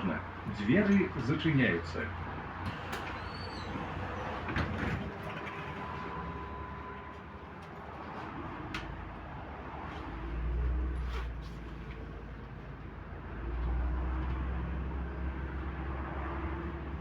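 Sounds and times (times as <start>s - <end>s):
diesel engine rumble: 0.0s - 17.0s
bus doors knocking shut: 2.6s - 5.8s.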